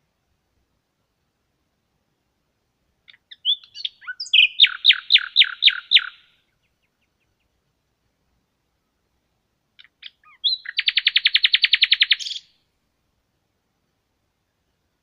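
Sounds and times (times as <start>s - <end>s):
songbird singing: 1.8s - 12.7s.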